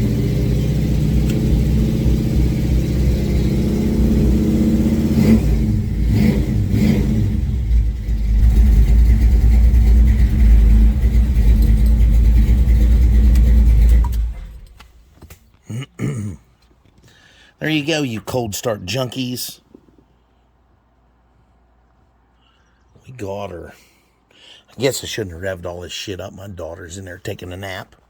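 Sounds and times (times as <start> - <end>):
car engine revving: 0.0 - 14.8.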